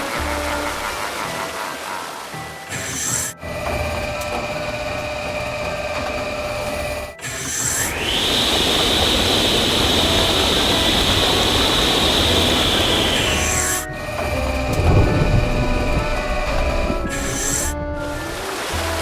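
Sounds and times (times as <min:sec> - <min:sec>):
cartoon vehicle rumbling: 0:00.0 - 0:19.0
high whistle: 0:07.6 - 0:14.4.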